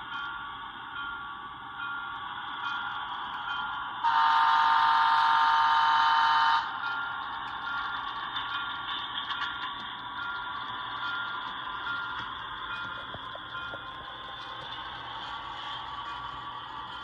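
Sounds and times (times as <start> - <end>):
multi-tone horn blast: 4.1 - 6.7.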